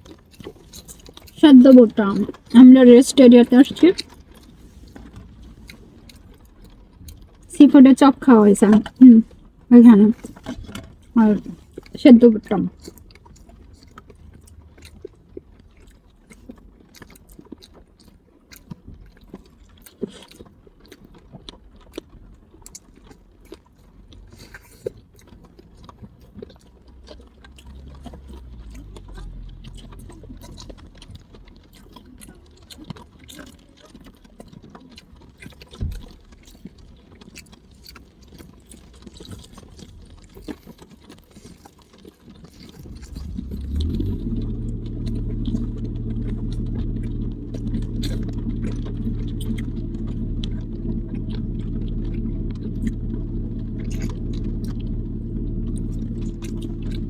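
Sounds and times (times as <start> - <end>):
person chewing corn: 0.0 - 7.5, 8.6 - 57.0
low rumble: 42.8 - 57.0.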